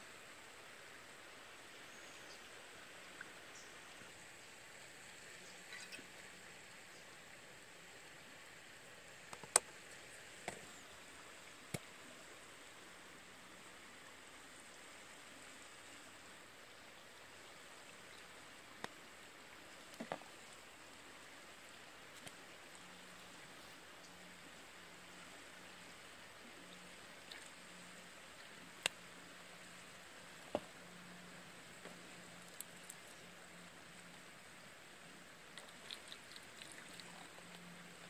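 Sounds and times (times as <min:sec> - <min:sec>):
faint steady hiss: 0:00.0 - 0:38.0.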